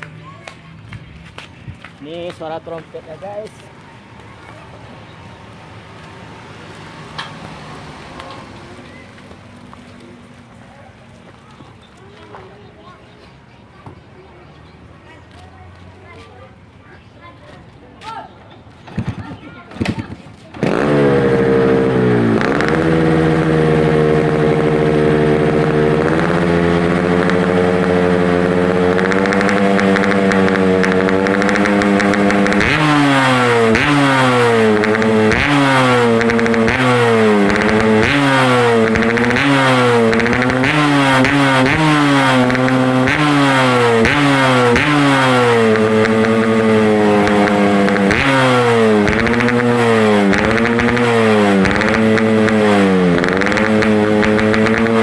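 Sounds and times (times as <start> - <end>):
two-stroke motorcycle engine revving: 18.9 - 55.0.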